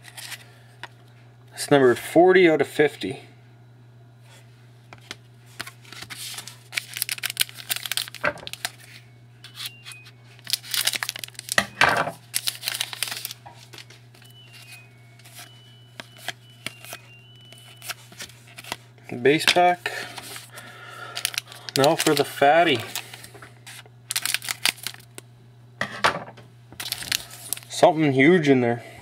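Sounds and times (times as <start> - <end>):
steady low hum: 0.0 - 29.0
wrapper tearing and crinkling: 5.6 - 9.8, 10.4 - 11.6, 12.2 - 15.5, 20.2 - 25.2, 26.8 - 27.8.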